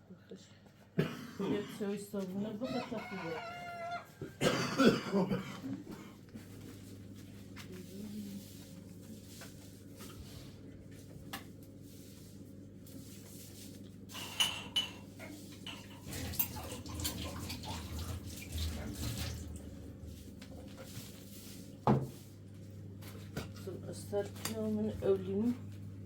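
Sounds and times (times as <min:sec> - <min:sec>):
dishes clattering: 0:14.1 - 0:19.3
water splashing: 0:16.0 - 0:19.8.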